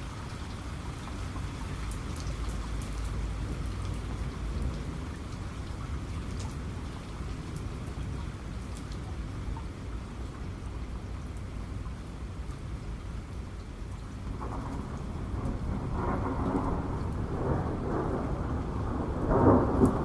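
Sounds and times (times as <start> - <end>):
heavy rain falling: 0.0 - 20.0
distant thunder rumble: 14.3 - 20.0.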